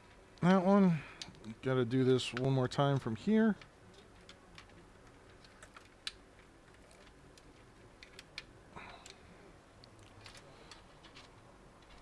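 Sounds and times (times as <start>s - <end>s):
plastic parts clicking: 3.6s - 9.2s, 9.8s - 12.0s.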